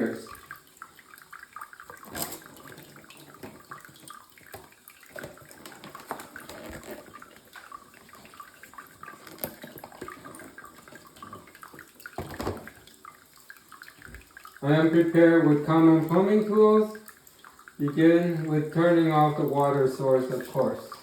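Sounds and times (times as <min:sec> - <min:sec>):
water spattering: 0:00.0 - 0:21.0
water trickling and dripping: 0:00.0 - 0:21.0.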